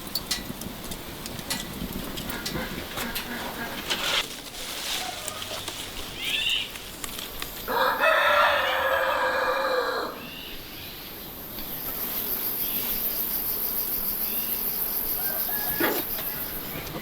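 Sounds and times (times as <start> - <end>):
rooster crowing: 7.7 - 10.4, 15.2 - 16.6.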